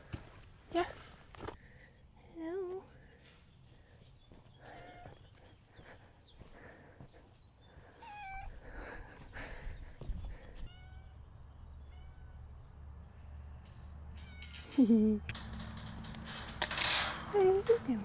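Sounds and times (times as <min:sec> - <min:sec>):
cat meowing: 0:08.0 - 0:08.6, 0:11.8 - 0:12.5.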